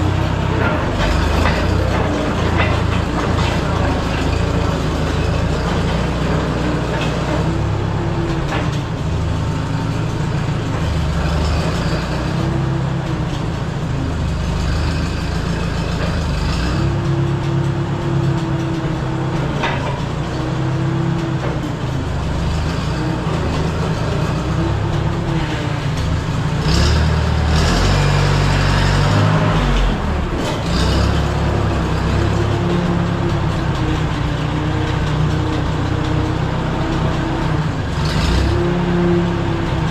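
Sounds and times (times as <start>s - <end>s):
crawler dozer engine running: 0.0s - 39.9s.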